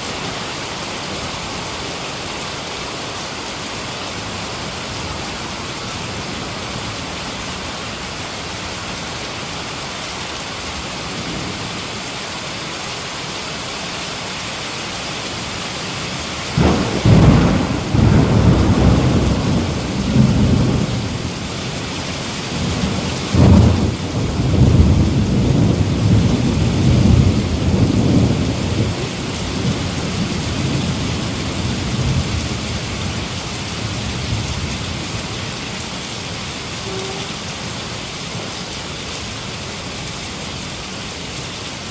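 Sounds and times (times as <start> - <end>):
heavy rain falling: 0.0 - 41.9
thunder rumbling: 16.5 - 21.8, 22.5 - 35.3.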